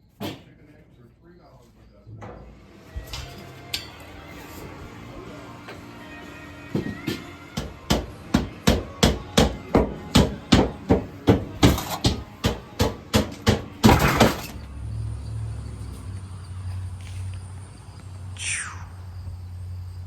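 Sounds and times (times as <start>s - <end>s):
hammer striking: 6.8s - 14.5s.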